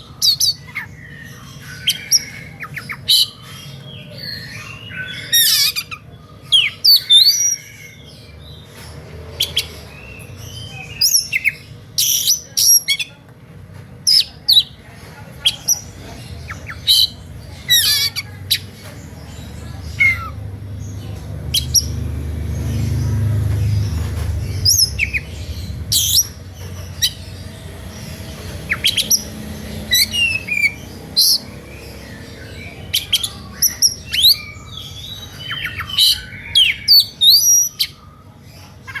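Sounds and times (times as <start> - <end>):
magpie-robin chirps and whistles: 0.0 - 8.0, 28.7 - 38.0.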